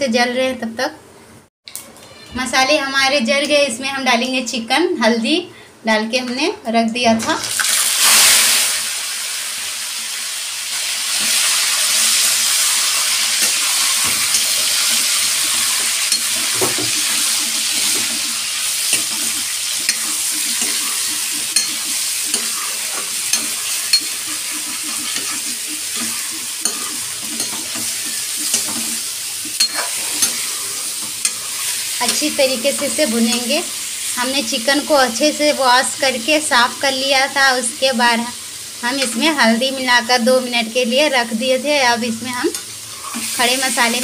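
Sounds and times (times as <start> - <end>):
chicken sizzling in hot oil: 7.5 - 44.0
metal ladle clinking and scraping: 12.8 - 32.2.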